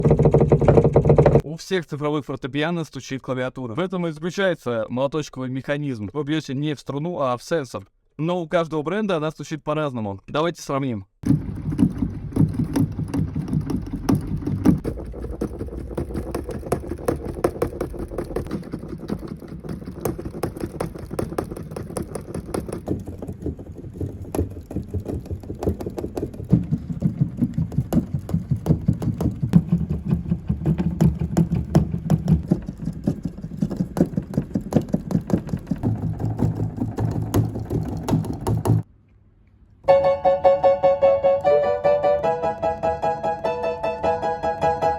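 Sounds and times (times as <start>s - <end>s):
piano keys thumping and clacking: 11.2s - 38.9s, 39.8s - 44.9s.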